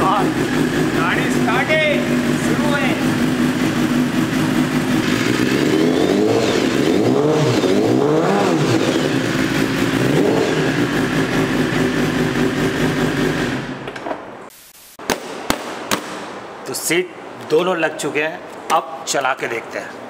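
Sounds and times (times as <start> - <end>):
motorcycle engine revving and idling: 0.0 - 13.8.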